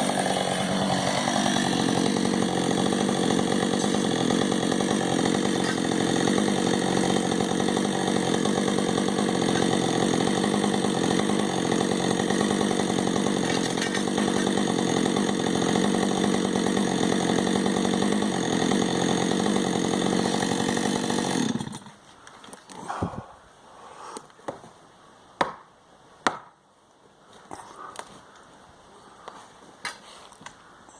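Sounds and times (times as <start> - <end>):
chainsaw cutting tree trunk: 0.0 - 22.0.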